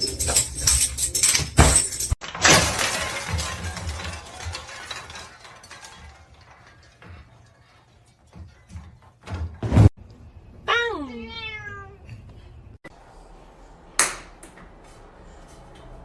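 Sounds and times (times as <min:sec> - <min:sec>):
scattering rattle: 0:00.0 - 0:09.5
clattering knocks: 0:01.4 - 0:09.6
loud crash of something breaking: 0:02.2 - 0:06.9.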